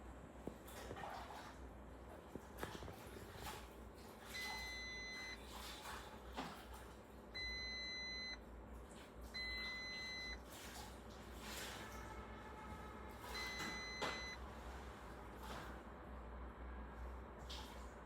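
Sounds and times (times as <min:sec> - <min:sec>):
electronic warning beeps: 0:04.4 - 0:05.4, 0:07.4 - 0:08.4, 0:09.4 - 0:10.4, 0:13.3 - 0:14.4.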